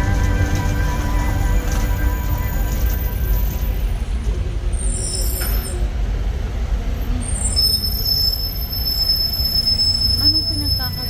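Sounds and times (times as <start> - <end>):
thin high whine: 0.0 - 4.2
vehicle rumble: 0.0 - 11.0.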